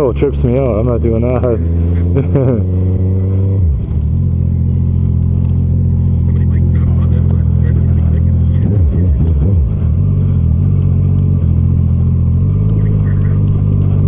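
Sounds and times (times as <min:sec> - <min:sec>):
motorcycle engine idling: 0:03.8 - 0:14.0.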